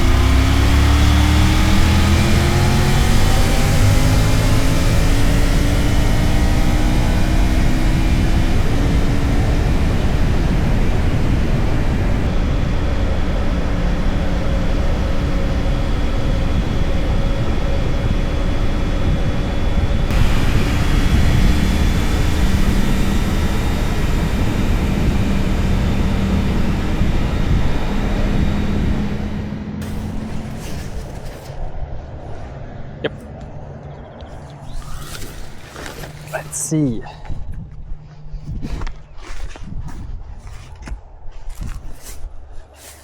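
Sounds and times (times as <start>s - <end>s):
wind rushing over microphone: 0.0s - 29.5s, 37.2s - 42.6s
motorcycle engine running: 0.0s - 31.3s.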